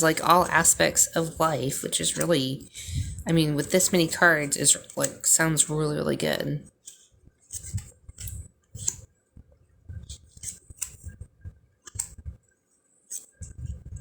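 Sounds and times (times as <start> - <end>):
cards sliding and tapping: 6.8 - 9.0, 10.0 - 11.2, 11.8 - 12.2, 13.1 - 13.4.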